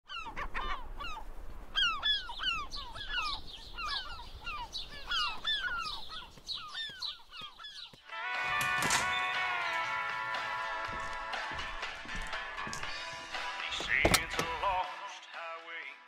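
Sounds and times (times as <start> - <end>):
flock of birds calling: 0.1 - 10.9.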